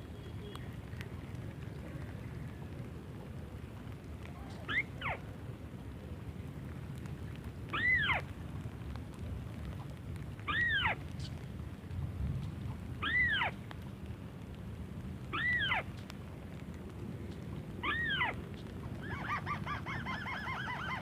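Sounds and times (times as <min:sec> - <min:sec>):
bird call rising squeal: 0:07.7 - 0:08.2, 0:13.0 - 0:13.5, 0:15.3 - 0:15.8, 0:17.8 - 0:18.4, 0:19.0 - 0:21.0.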